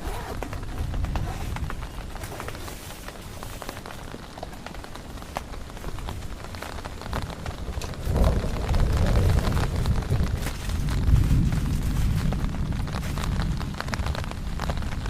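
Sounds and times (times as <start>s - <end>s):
heavy rain falling: 0.0s - 15.0s
deep low rumble: 6.0s - 15.0s.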